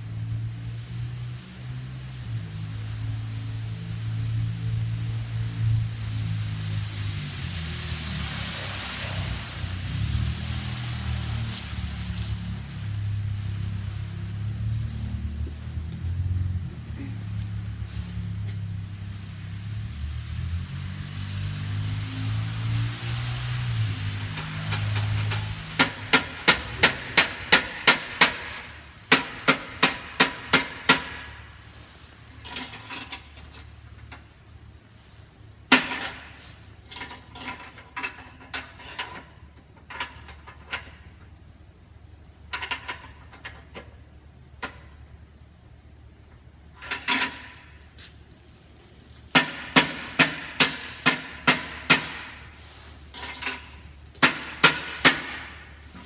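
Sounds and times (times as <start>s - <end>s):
metallic blows on exhaust: 2.3s - 34.0s.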